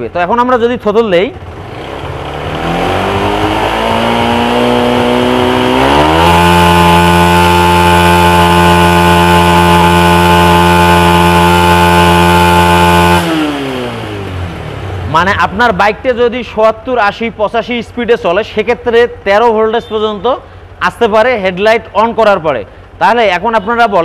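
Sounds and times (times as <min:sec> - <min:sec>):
motorcycle engine revving: 0:00.8 - 0:16.2.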